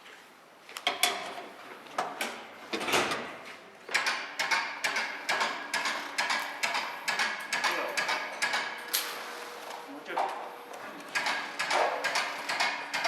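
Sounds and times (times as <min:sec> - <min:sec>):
mechanical clicks and knocks: 0:03.9 - 0:09.1.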